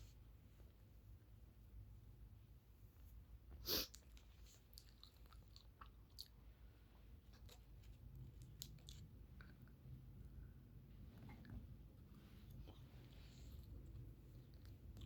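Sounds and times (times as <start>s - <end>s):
person chewing: 3.8s - 6.4s, 7.3s - 9.7s.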